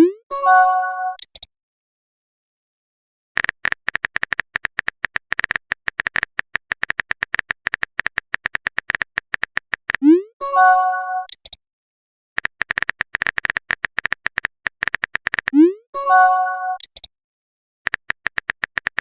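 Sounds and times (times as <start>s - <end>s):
rapid typing clicks with beeps: 3.4s - 10.2s, 11.2s - 11.6s, 12.4s - 15.8s, 16.7s - 17.1s, 17.9s - 19.0s.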